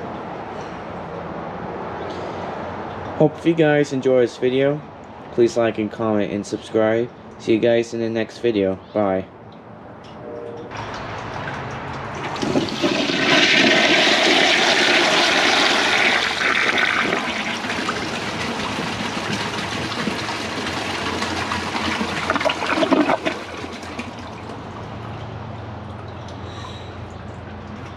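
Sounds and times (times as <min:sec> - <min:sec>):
toilet flushing water rushing: 0:10.7 - 0:24.8.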